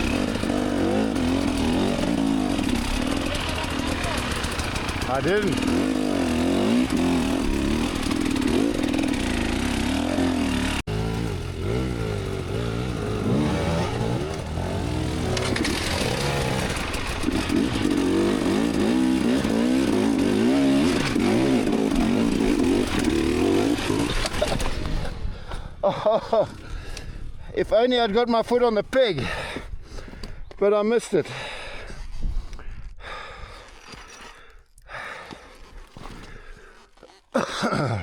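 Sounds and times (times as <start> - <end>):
dirt bike engine revving: 0.0 - 25.1.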